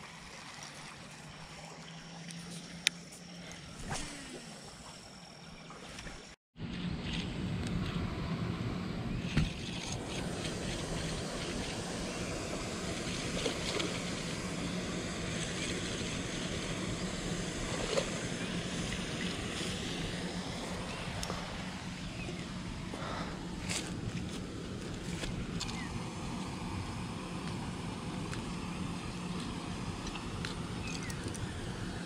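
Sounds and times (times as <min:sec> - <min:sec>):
low hum: 0:00.0 - 0:32.0
steady rushing noise: 0:06.9 - 0:32.0.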